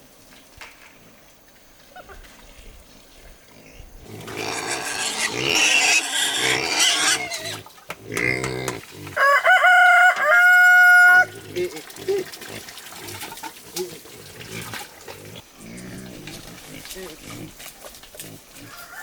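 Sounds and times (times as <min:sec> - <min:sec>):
pig squealing: 0:03.6 - 0:12.7.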